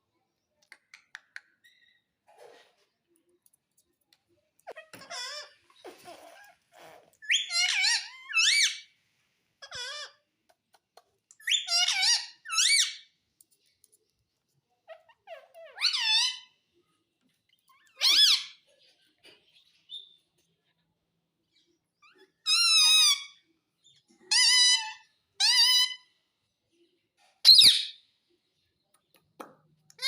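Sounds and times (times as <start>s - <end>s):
parrot squeaky calls: 4.6s - 8.9s, 9.6s - 10.2s, 11.4s - 13.2s, 14.8s - 16.6s, 17.6s - 18.7s, 22.0s - 26.2s, 27.4s - 28.0s.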